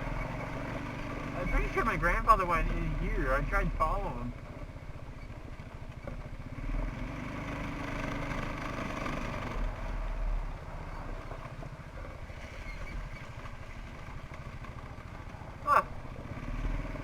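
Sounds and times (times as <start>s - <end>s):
quad bike engine running: 0.0s - 17.0s.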